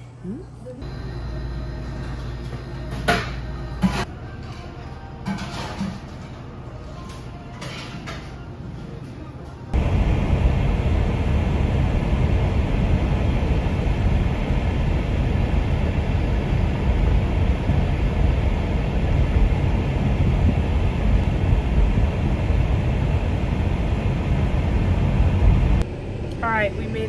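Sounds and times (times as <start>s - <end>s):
moving car rumble: 9.8s - 26.3s.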